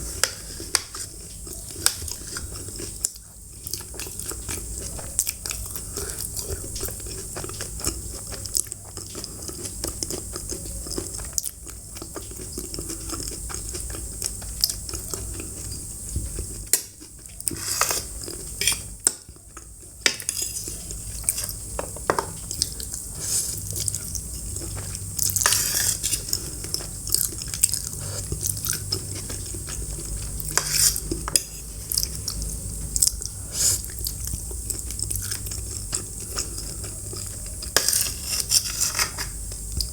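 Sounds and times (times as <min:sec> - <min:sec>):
chewing food: 0:00.0 - 0:39.9
cutlery clinking against a dish: 0:16.7 - 0:22.7, 0:30.4 - 0:31.7, 0:37.7 - 0:39.4.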